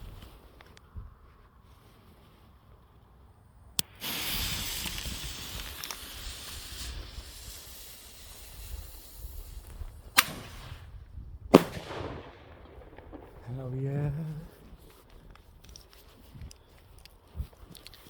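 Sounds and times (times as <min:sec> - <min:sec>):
firework cracking and hissing: 0:03.8 - 0:18.0
firework bangs: 0:03.9 - 0:15.0.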